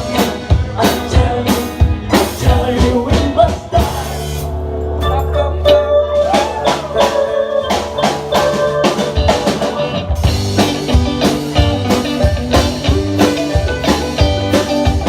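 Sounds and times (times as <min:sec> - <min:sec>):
blues-rock band playing: 0:00.0 - 0:15.0.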